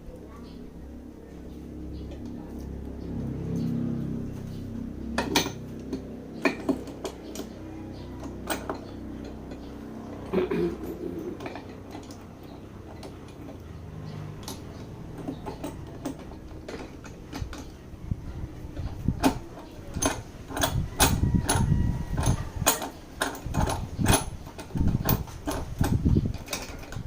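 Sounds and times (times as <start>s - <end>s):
metal tools clinking and knocking: 4.8s - 27.0s.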